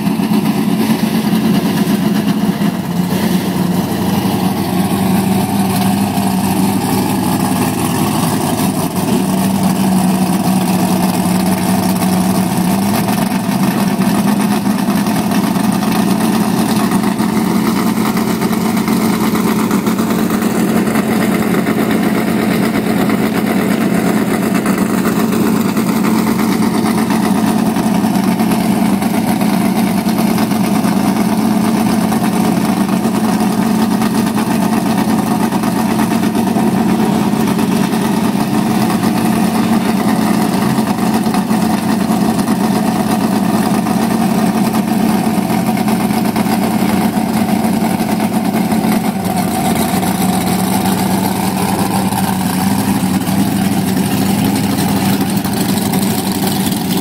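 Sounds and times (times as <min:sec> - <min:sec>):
race car engines idling: 0:00.0 - 0:57.0.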